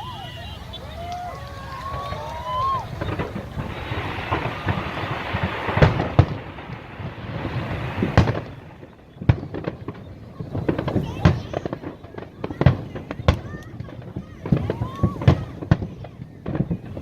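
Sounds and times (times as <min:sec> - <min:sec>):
crackling pops: 0:00.0 - 0:17.0
fireworks loud bangs: 0:00.0 - 0:17.0.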